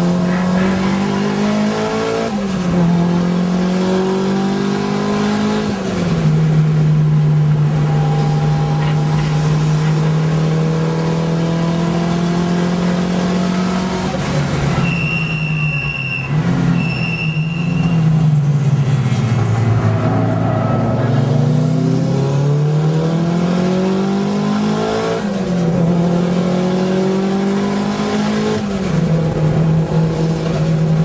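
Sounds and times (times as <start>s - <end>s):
car engine pulling hard: 0.0s - 31.0s
high whine: 7.1s - 10.6s, 16.8s - 22.7s.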